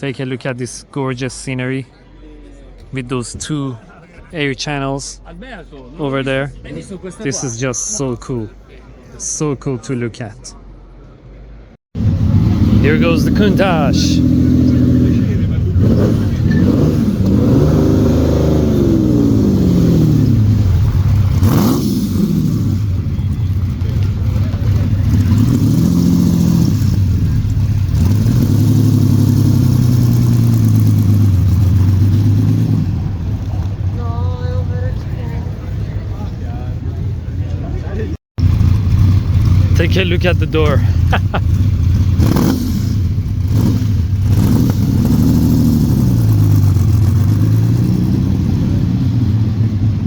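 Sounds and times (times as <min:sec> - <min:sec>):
car engine revving: 0:12.0 - 0:37.0, 0:38.4 - 0:50.0.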